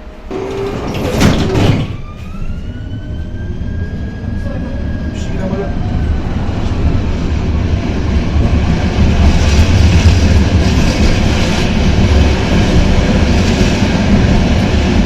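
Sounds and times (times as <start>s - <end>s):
tram wheels rumbling: 0.0s - 15.0s
rail clatter: 0.3s - 2.0s.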